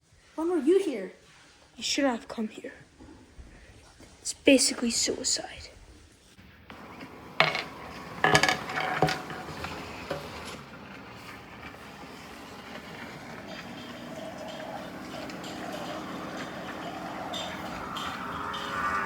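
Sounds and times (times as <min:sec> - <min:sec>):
sharp clattering knocks: 0:06.7 - 0:18.7
steady background noise: 0:06.7 - 0:19.0.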